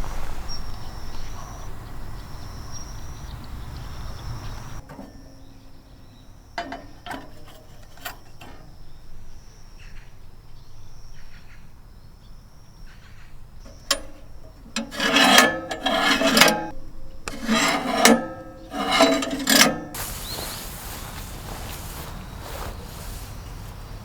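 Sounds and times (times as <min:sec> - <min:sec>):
rasping scraping strokes: 0:06.6 - 0:08.8, 0:13.7 - 0:21.0.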